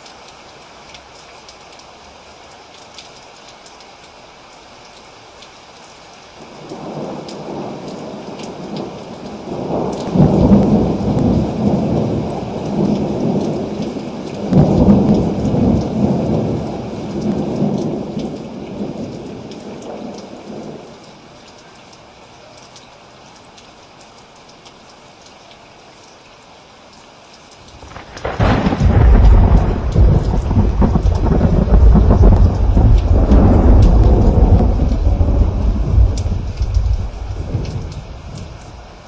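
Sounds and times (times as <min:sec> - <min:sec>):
steady rain: 0:00.0 - 0:39.0
thunder rolling: 0:09.5 - 0:13.2, 0:14.5 - 0:18.1, 0:27.8 - 0:38.8.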